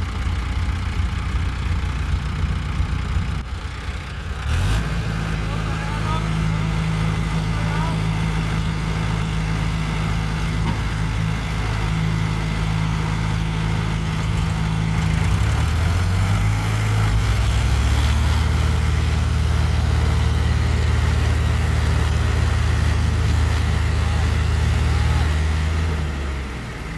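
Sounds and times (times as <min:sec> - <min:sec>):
diesel tractor engine running: 0:00.0 - 0:26.9.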